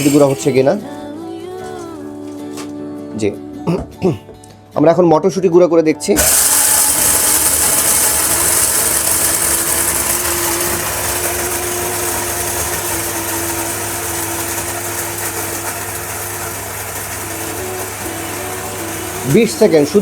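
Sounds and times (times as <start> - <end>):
grinder motor whirring and grinding: 0.0 - 0.8, 6.2 - 20.0.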